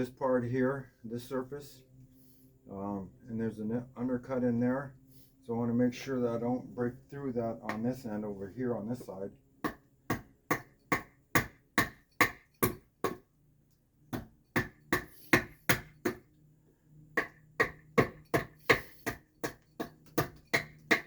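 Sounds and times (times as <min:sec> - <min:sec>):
adze chopping wood: 0:09.6 - 0:13.2, 0:14.1 - 0:16.3, 0:17.2 - 0:21.0.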